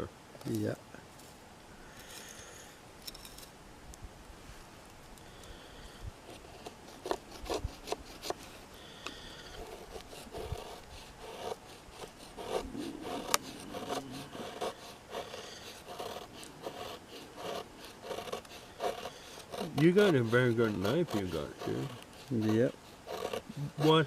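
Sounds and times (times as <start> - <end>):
knife scraping wood: 6.2 - 24.0.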